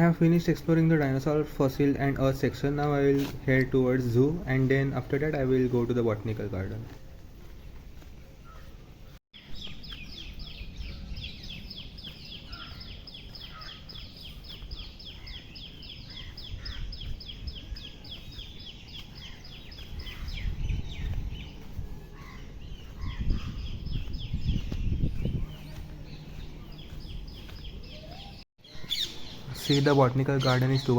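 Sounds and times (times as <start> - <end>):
bird chirping: 7.4 - 30.9.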